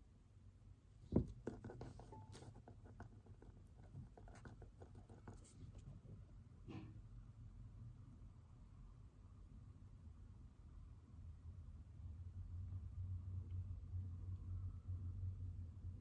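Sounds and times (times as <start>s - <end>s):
knock: 1.1s - 2.5s
pen scratching on paper: 1.2s - 5.8s.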